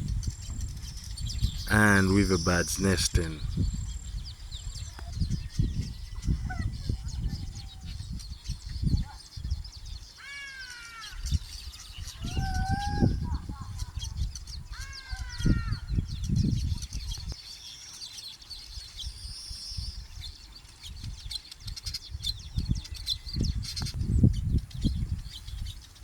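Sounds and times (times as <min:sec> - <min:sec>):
weaver birds chattering: 0:00.0 - 0:26.0
harsh bird call: 0:01.7 - 0:03.5.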